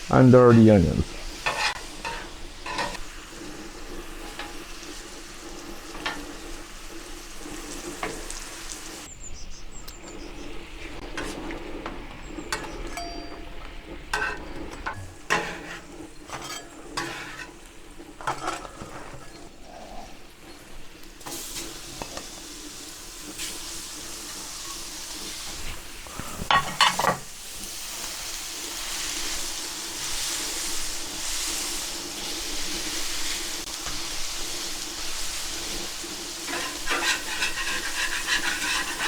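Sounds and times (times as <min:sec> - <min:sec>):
onions sizzling on a griddle: 0:00.0 - 0:39.0
spatula scraping on steel: 0:01.1 - 0:09.1, 0:10.2 - 0:19.6, 0:35.4 - 0:39.0.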